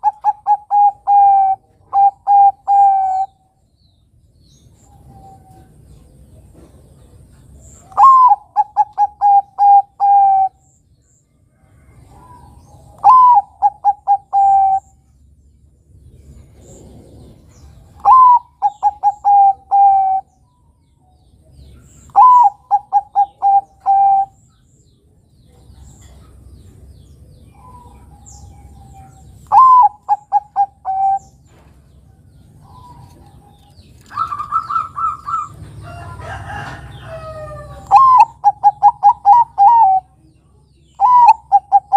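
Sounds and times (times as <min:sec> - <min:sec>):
dove cooing: 0:00.0 - 0:03.4, 0:07.8 - 0:10.6, 0:12.0 - 0:15.0, 0:16.6 - 0:20.4, 0:22.1 - 0:24.4, 0:27.5 - 0:31.5, 0:32.6 - 0:40.2, 0:41.0 - 0:41.9
other bird calls: 0:00.0 - 0:03.6, 0:04.5 - 0:10.8, 0:12.0 - 0:15.2, 0:16.3 - 0:20.8, 0:21.6 - 0:24.8, 0:25.8 - 0:40.2, 0:40.8 - 0:41.9.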